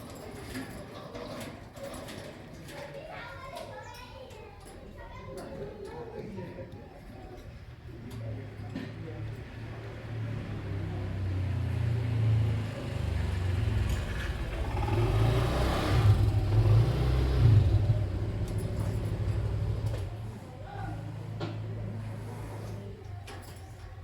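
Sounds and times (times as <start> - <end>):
vehicle engine passing: 9.8 - 20.4.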